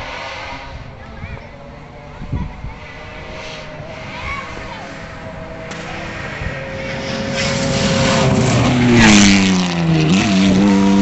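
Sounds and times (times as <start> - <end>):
burst of engine noise: 0.0 - 11.0
rally car engine at high revs: 0.0 - 11.0.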